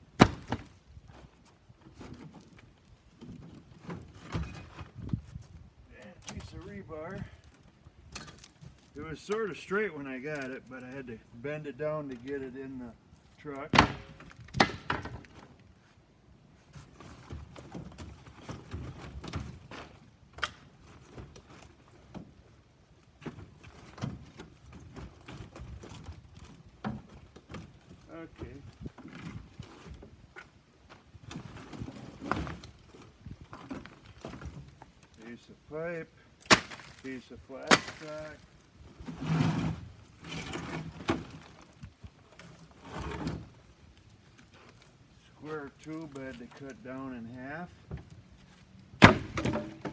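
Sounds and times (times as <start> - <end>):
scrap metal clanking and scraping: 36.6 - 43.6.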